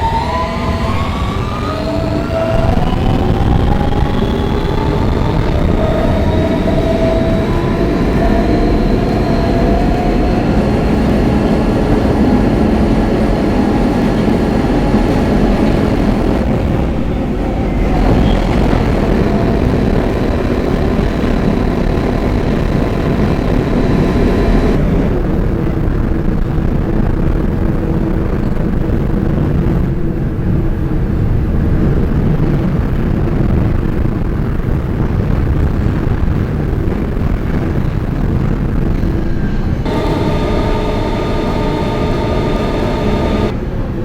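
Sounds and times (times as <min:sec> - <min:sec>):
subway traction motors whining: 0:00.0 - 0:26.1, 0:36.9 - 0:44.0
wheels rumbling on rails: 0:00.0 - 0:44.0.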